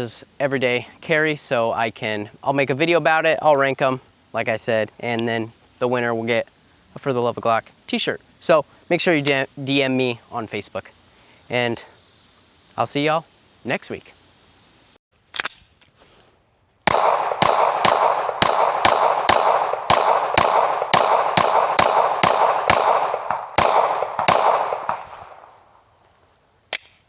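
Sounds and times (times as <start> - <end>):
rapid sharp bangs: 16.9 - 25.6.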